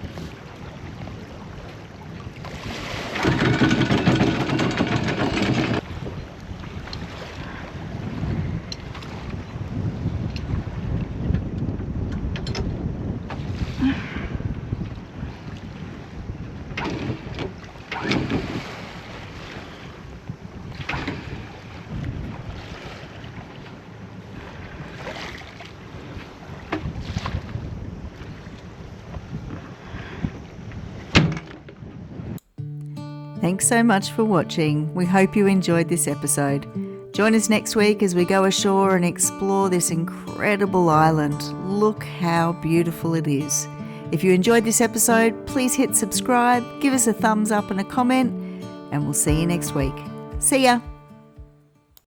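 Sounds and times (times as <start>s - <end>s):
water washing around hull: 0.0s - 12.3s, 14.5s - 31.0s
anchor chain rattling out: 3.2s - 5.8s
wind on microphone: 5.7s - 17.4s, 20.0s - 22.7s.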